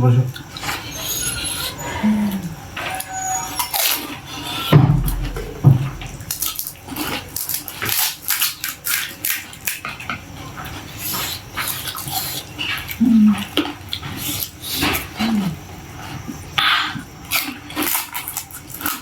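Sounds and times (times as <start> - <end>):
crisp shells crunching: 5.0 - 9.8.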